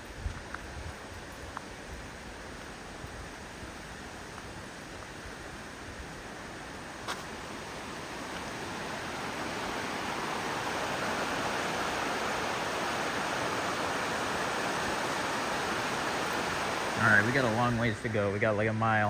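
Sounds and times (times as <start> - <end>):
fast-flowing river rushing: 6.4 - 18.8.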